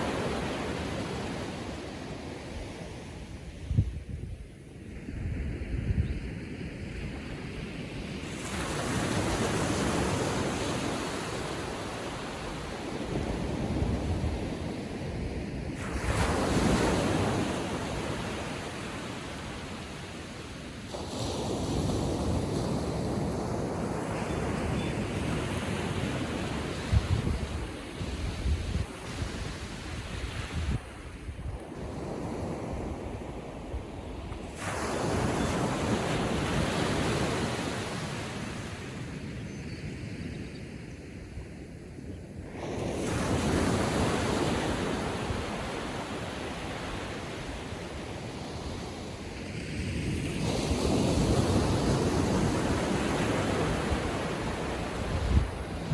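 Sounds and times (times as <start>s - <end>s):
small waves washing on beach: 0.0s - 3.7s, 6.7s - 39.4s, 42.4s - 55.9s
wind buffeting microphone: 24.4s - 31.6s, 50.4s - 55.9s.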